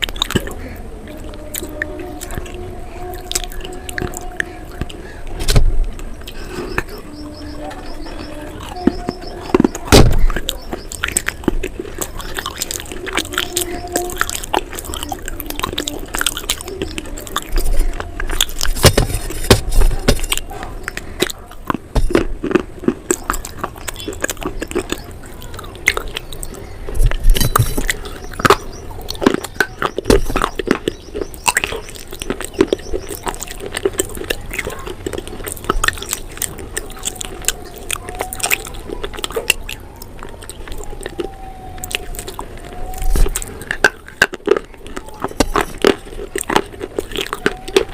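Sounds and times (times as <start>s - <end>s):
crunching hard food: 0.0s - 47.9s.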